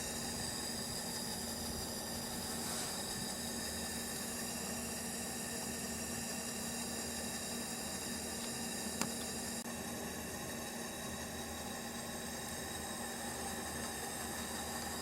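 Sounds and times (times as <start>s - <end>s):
pressure lantern hissing: 0.0s - 15.0s.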